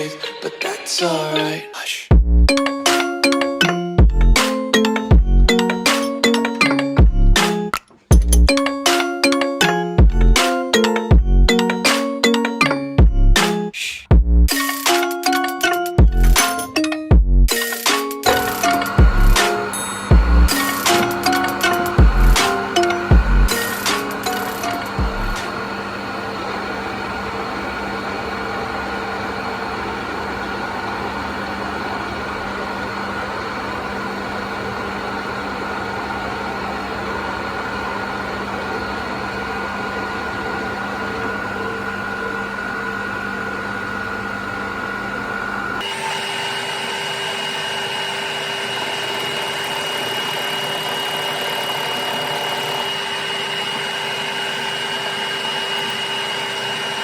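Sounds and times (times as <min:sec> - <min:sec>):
machine high whine: 0:18.2 - 0:57.0
machine tool motor hum: 0:18.2 - 0:57.0.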